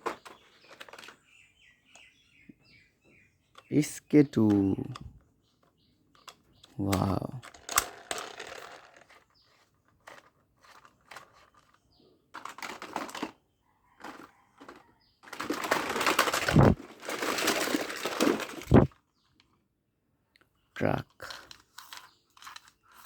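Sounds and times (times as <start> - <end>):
plastic toy clicks and rattles: 0.0 - 1.2, 4.3 - 5.1, 6.1 - 13.4, 14.0 - 18.7, 21.1 - 23.0
plastic toy scraping: 0.0 - 1.3, 7.0 - 13.4, 14.0 - 19.0, 21.1 - 23.0.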